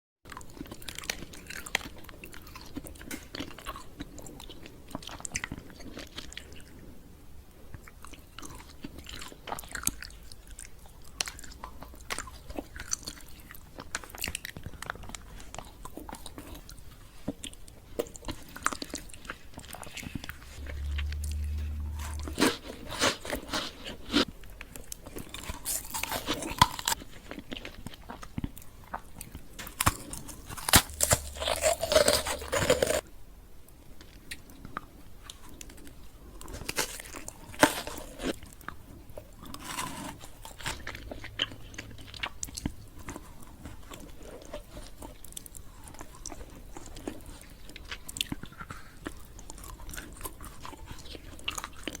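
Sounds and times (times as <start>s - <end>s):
chocolate candy crunching: 7.8s - 33.1s, 34.0s - 52.0s
low rumble: 20.6s - 23.5s.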